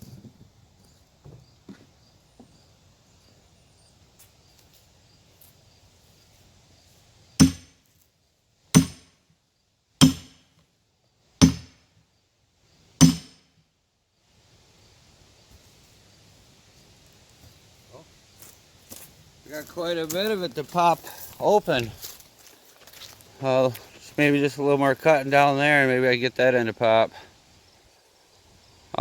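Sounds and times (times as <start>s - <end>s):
blows driving wedge into log: 7.4s - 7.7s, 8.8s - 9.1s, 10.0s - 10.4s, 11.4s - 11.8s, 13.0s - 13.4s.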